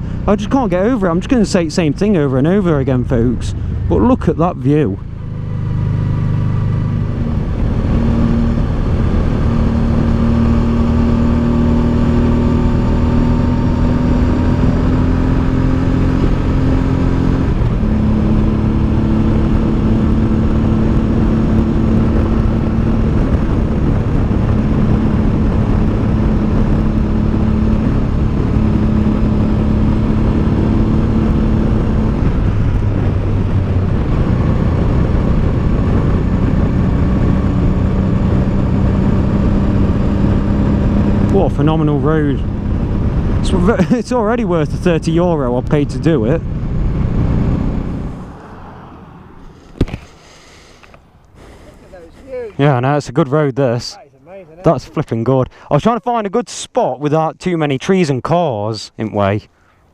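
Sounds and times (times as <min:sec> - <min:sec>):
low rush of riding noise: 0:40.9 - 0:56.7.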